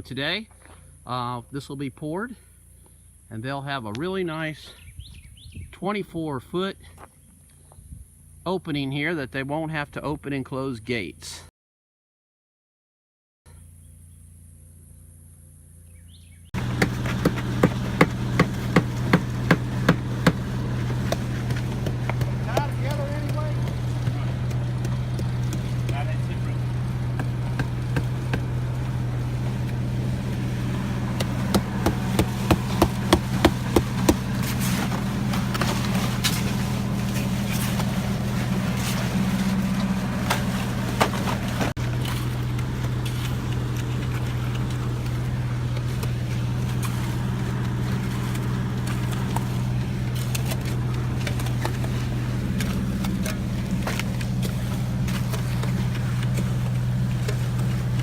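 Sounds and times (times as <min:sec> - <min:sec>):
engine running steadily: 0:13.5 - 0:58.0
sharp knocks: 0:16.6 - 0:26.0, 0:31.1 - 0:34.4.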